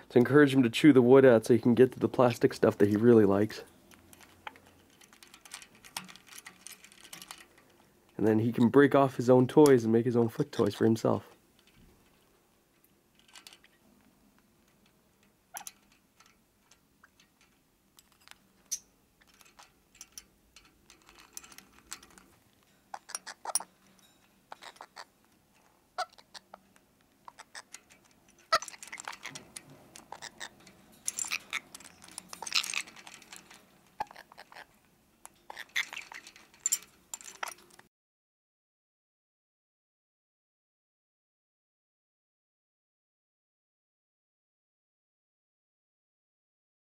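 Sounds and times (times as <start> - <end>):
clicks and clatter of toy pieces: 2.6 - 7.8, 12.8 - 13.8, 15.5 - 37.9
parrot chewing cage toy: 3.8 - 7.9, 11.6 - 37.8.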